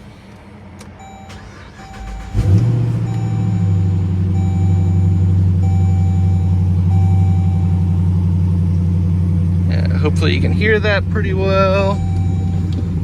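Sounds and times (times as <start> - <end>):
car engine starting and idling: 0.0 - 13.0
warning chime tone: 1.0 - 8.0, 11.5 - 13.0.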